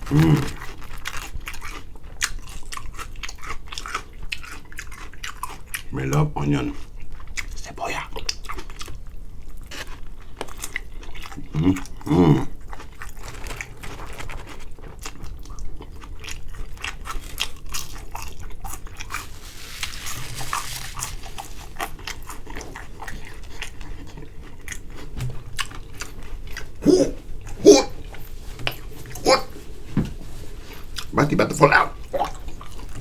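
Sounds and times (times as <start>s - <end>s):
person chewing crunchy food: 0.0s - 5.9s, 6.7s - 29.9s, 30.6s - 31.2s, 31.9s - 33.0s
mouth clicks: 26.8s - 28.0s.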